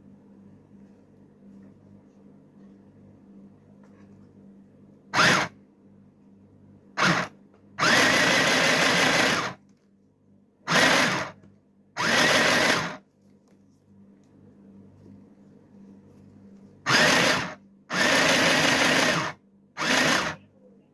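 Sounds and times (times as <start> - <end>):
sewing machine motor running: 5.2 - 5.5, 7.0 - 9.6, 10.7 - 11.4, 12.0 - 13.0, 16.9 - 20.4.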